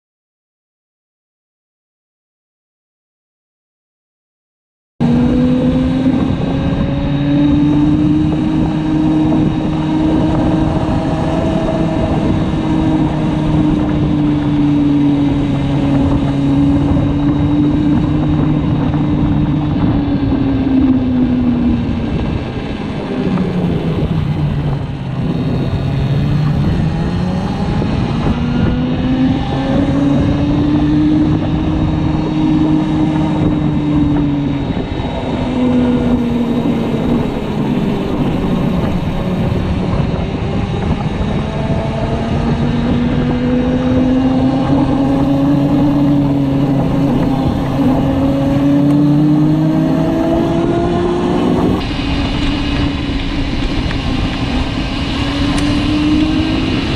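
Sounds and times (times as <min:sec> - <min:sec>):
motorcycle engine running: 0:05.0 - 0:56.9.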